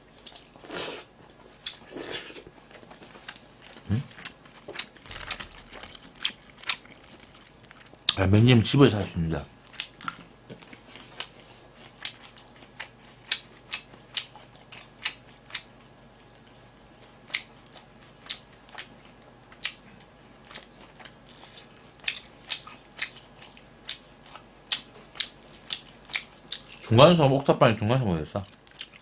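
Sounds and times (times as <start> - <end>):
person chewing food: 0.0 - 8.2, 9.6 - 26.9, 28.4 - 29.0.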